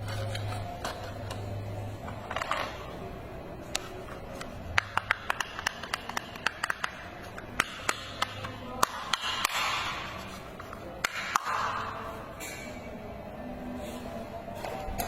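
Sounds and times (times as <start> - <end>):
plastic toy clicks and taps: 4.8 - 9.8.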